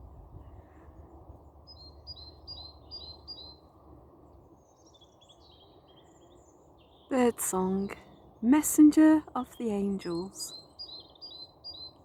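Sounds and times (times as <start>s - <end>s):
songbirds singing: 0.3s - 12.0s
low steady hum: 7.1s - 10.5s.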